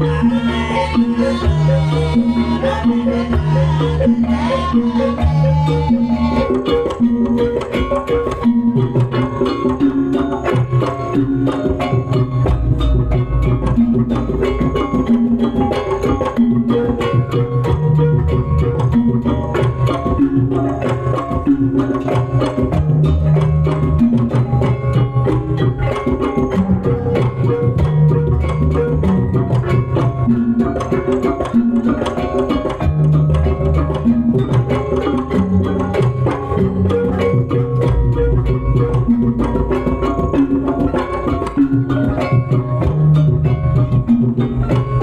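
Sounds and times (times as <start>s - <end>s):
percussion music with drums: 0.0s - 45.0s.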